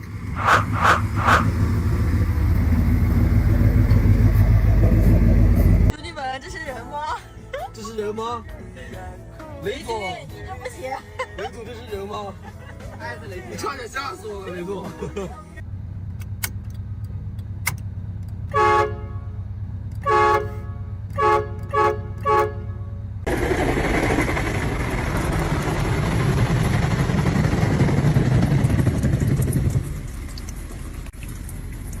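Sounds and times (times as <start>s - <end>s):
loud steady rushing noise: 0.2s - 2.1s
car horn honking: 0.4s - 1.6s, 18.5s - 19.4s, 20.0s - 23.1s.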